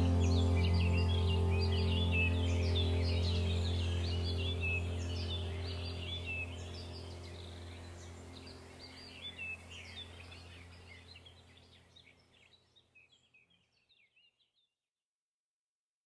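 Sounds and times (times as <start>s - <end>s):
low steady drone: 0.0s - 12.0s
small birds chirping: 0.0s - 14.7s.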